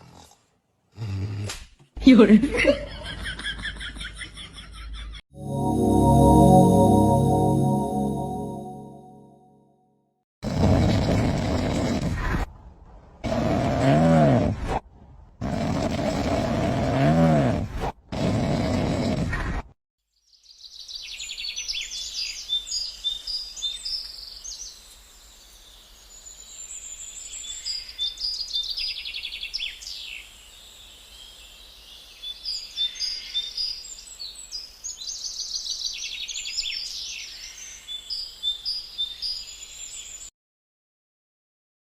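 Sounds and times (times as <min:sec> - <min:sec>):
songbirds chirping and trilling: 0:20.4 - 0:40.3.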